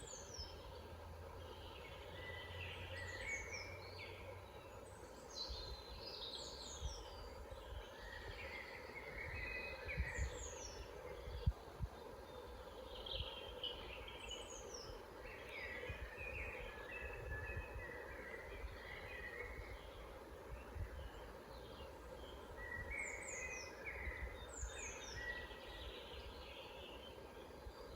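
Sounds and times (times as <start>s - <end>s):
woodland birds singing: 0.0s - 27.9s.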